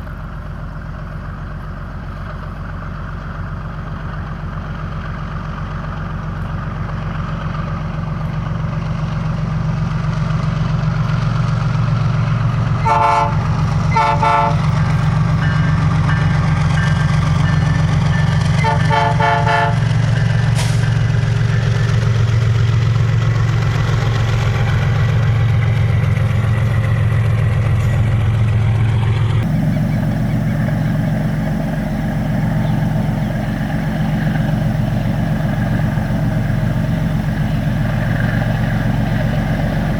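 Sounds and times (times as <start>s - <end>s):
diesel locomotive engine drone: 0.0s - 39.9s
locomotive horn blasts: 12.8s - 14.8s, 18.6s - 20.0s, 29.4s - 39.9s.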